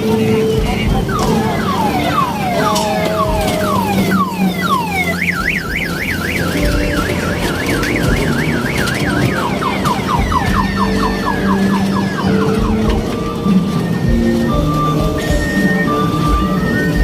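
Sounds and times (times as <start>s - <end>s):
electronic siren: 0.0s - 17.0s.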